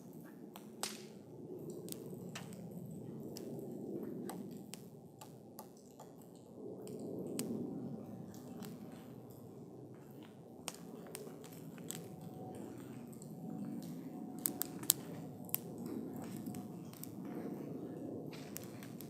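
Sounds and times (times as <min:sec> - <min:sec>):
burning wood crackling and popping: 0:00.0 - 0:19.0
soft rush of flames: 0:00.6 - 0:19.0
loud fire pops: 0:18.3 - 0:19.0.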